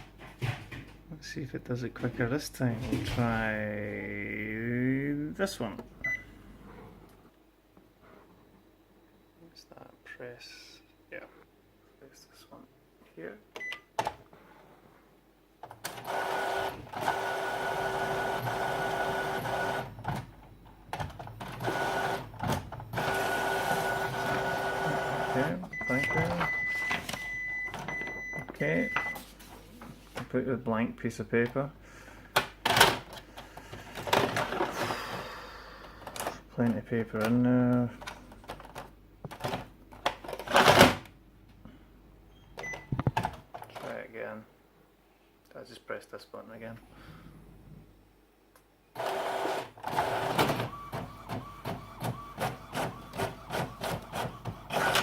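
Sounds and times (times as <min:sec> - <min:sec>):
printer mechanism whirring: 0:15.8 - 0:27.9, 0:49.0 - 0:55.0
electronic beep: 0:25.8 - 0:29.2.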